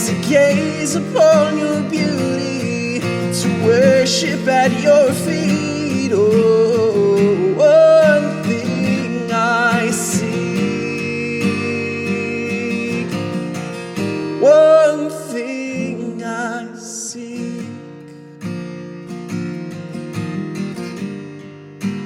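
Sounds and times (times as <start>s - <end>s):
strummed acoustic guitar: 0.0s - 22.0s.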